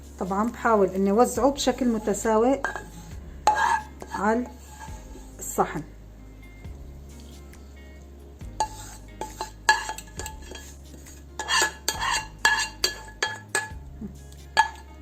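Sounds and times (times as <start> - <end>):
metal spoon clinking on cookware: 2.0 - 4.9, 8.6 - 10.8, 11.4 - 13.8, 14.5 - 14.9.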